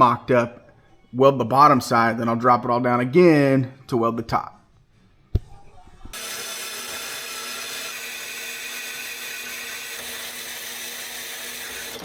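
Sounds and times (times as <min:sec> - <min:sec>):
electric power tool whirring: 0:06.1 - 0:12.0.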